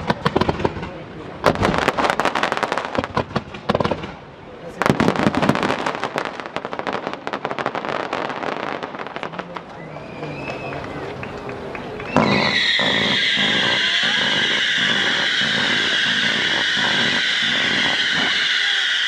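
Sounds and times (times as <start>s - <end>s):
fireworks crackling: 0.0s - 19.0s
shrill whistling screech: 12.0s - 19.0s.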